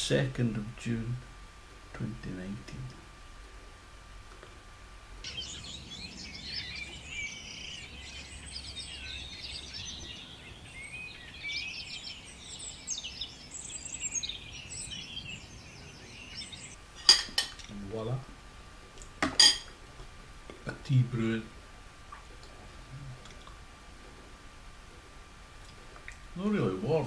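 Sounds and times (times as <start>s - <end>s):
birds chirping and trilling: 5.2s - 17.3s.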